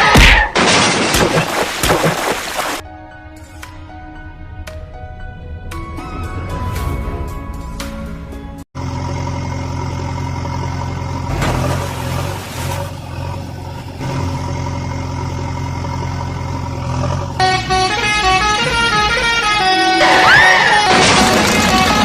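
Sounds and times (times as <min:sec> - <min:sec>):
cartoon engine drone: 0:08.8 - 0:11.4, 0:14.0 - 0:22.0
horn honking: 0:17.4 - 0:22.0.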